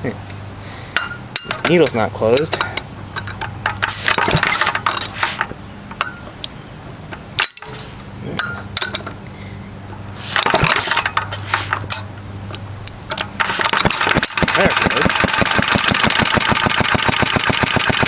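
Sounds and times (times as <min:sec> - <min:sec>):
low steady hum: 0:00.0 - 0:17.8
metal clinking and rattling: 0:10.3 - 0:12.1.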